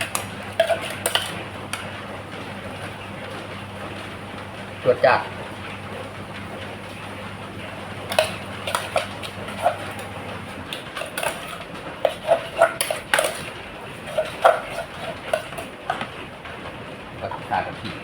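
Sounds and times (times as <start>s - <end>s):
spoons clinking on dishes: 0.0s - 1.9s, 8.0s - 16.1s.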